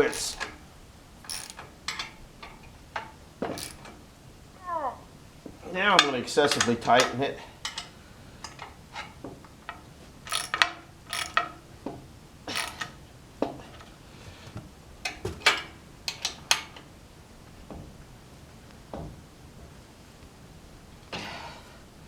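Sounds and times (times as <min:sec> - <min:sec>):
ratchet wrench clicking: 0:00.0 - 0:00.6, 0:01.3 - 0:02.1, 0:03.5 - 0:04.0, 0:10.3 - 0:11.5, 0:12.5 - 0:12.9.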